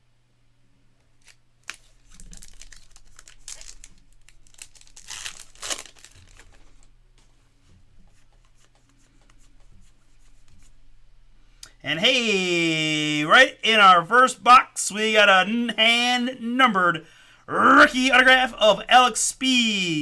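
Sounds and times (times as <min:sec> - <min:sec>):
card wrapper crinkling: 0:01.2 - 0:06.9
wrapper rustling: 0:01.2 - 0:06.9.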